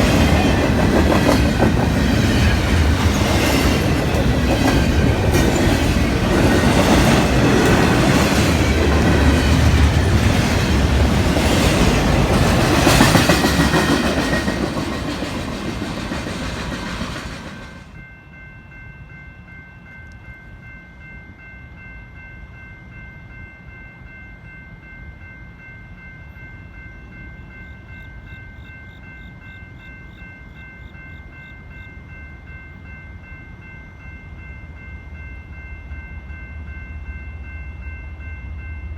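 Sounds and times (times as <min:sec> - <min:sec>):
train wheels clicking over rail joints: 0:00.0 - 0:18.0.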